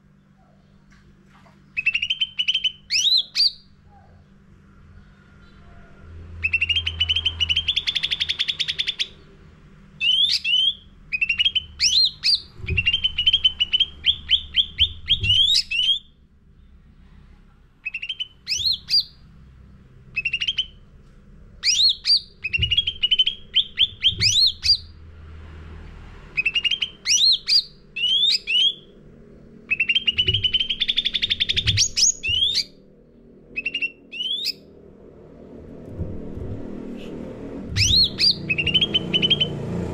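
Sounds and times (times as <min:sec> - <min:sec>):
steady low hum: 0:00.0 - 0:39.9
songbird singing trills and whistles: 0:01.7 - 0:04.2, 0:06.4 - 0:09.3, 0:10.0 - 0:16.1, 0:17.8 - 0:19.2, 0:20.1 - 0:20.8, 0:21.6 - 0:24.9, 0:26.4 - 0:28.9, 0:29.7 - 0:32.8, 0:33.5 - 0:34.7, 0:37.8 - 0:39.7.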